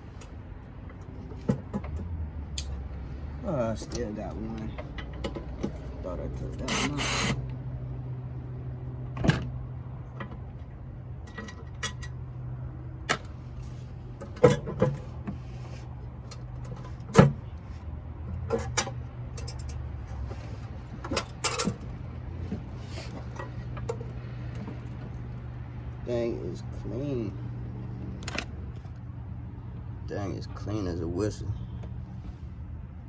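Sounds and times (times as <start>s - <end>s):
metallic clicks of hand tools: 2.6s - 2.8s.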